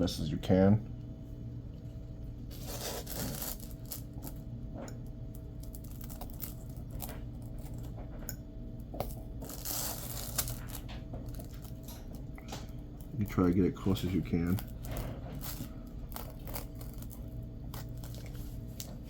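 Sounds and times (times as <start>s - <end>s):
steady low hum: 0.0s - 19.0s
craft knife blade scratching: 2.5s - 4.0s.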